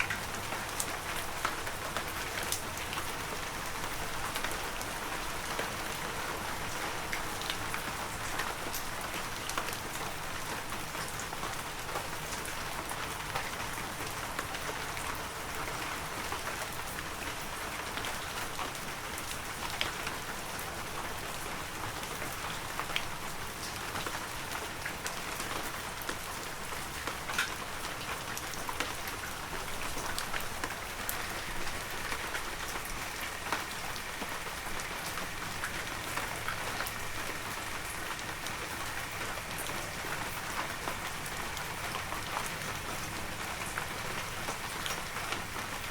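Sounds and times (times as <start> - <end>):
raindrops pattering: 0.0 - 45.9.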